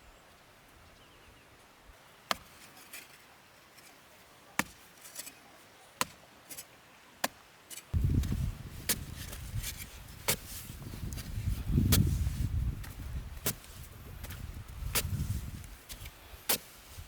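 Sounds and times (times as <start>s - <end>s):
sharp chopping strikes: 4.6s - 4.8s.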